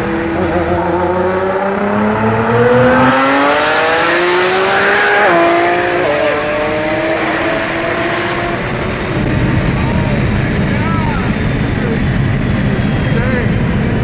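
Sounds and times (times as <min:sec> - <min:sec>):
car engine at full throttle: 0:00.0 - 0:14.0.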